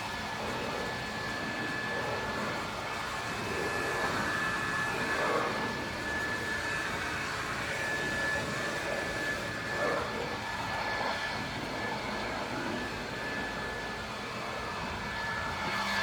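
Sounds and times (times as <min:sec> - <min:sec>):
pressure washer water jet hissing: 0:00.0 - 0:10.8
high whine: 0:00.0 - 0:16.0.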